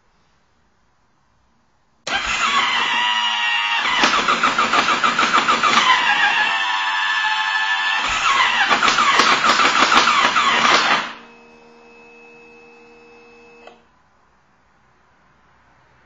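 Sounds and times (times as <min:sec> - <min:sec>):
motorcycle engine cranking: 0:02.1 - 0:06.6, 0:08.0 - 0:11.1
faint steady hum: 0:11.1 - 0:15.5
click: 0:13.6 - 0:13.8.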